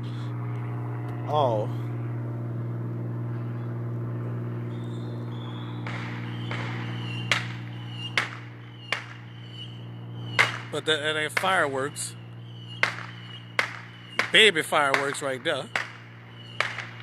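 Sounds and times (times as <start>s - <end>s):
steady low hum: 0.0s - 17.0s
firecrackers popping: 5.8s - 9.3s, 10.4s - 11.6s, 12.8s - 17.0s.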